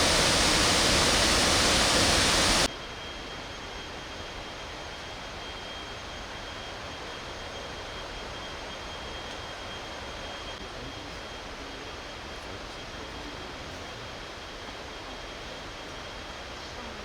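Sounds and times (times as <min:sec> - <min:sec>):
quieter water rushing: 0:00.0 - 0:02.7
waterfall roaring: 0:00.0 - 0:02.7
faint high whine: 0:00.0 - 0:13.9.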